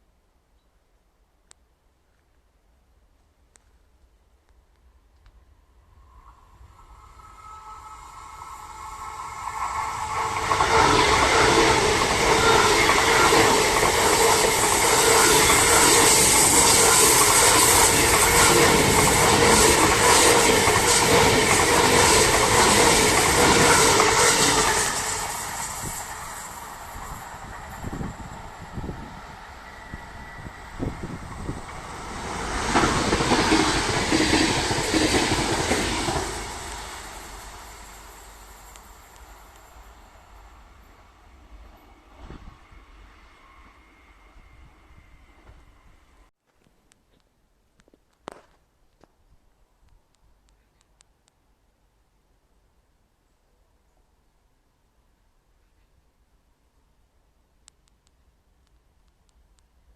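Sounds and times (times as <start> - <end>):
train wheels on rail: 5.2 - 46.3.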